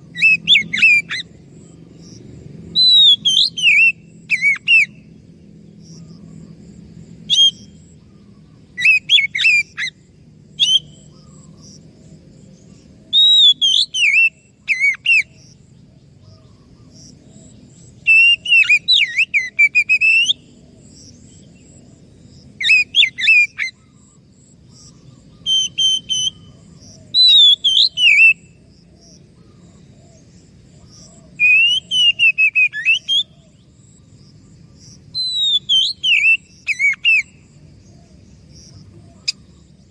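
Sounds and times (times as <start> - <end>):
bird singing whistles: 0.1 - 1.3, 2.7 - 5.1, 7.3 - 7.9, 8.8 - 11.4, 13.1 - 15.4, 18.0 - 20.5, 22.6 - 23.8, 24.8 - 28.6, 31.4 - 33.4, 35.1 - 37.5.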